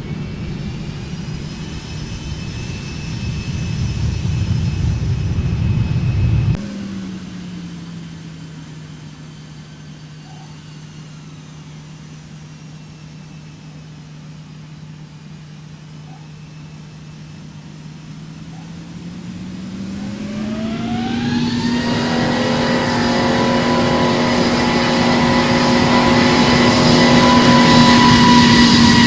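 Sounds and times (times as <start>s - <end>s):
jet engines humming: 0.0s - 29.0s.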